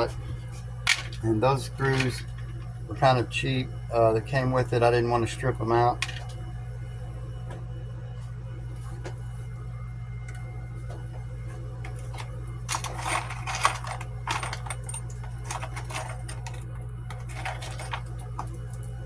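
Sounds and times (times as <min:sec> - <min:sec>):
steady low hum: 0:00.0 - 0:19.0
small parts and tools rattling: 0:00.9 - 0:01.2, 0:01.8 - 0:02.7, 0:12.1 - 0:19.0.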